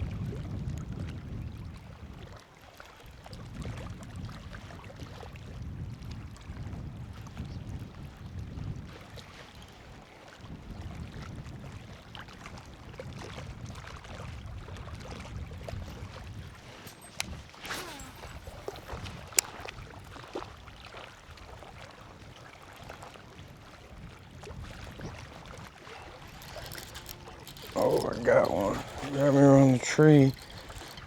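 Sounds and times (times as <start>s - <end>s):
wind buffeting microphone: 12.7s - 20.6s, 23.9s - 31.0s
faint clicks: 25.9s - 31.0s.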